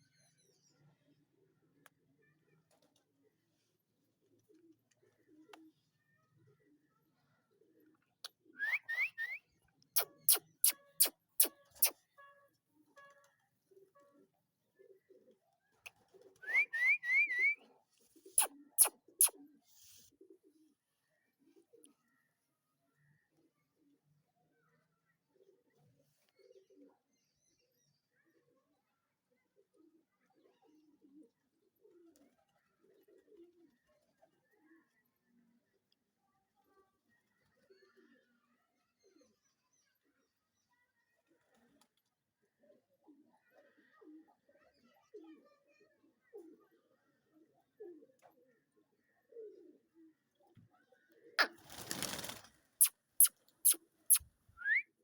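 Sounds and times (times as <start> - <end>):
pigeons cooing softly: 0.4 - 12.1, 12.8 - 52.6
quick sharp clicks: 18.8 - 19.3
fluttering rush of wings: 51.4 - 52.6.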